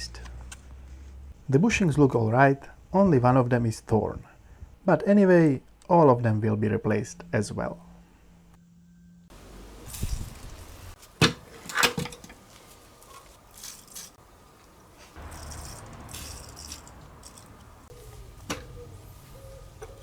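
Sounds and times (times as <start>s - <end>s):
rustling: 9.3s - 20.0s
short rattle: 15.2s - 17.9s.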